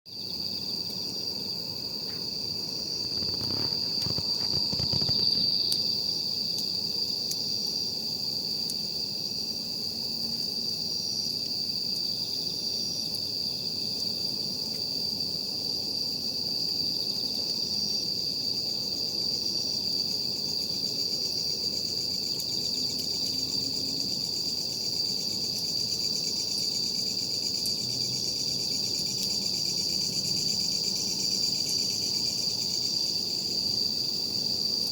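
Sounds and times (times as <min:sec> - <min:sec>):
insect chirp pulsing: 0:00.1 - 0:34.9
night insects trilling: 0:00.1 - 0:34.9
campfire crackling: 0:00.2 - 0:10.2.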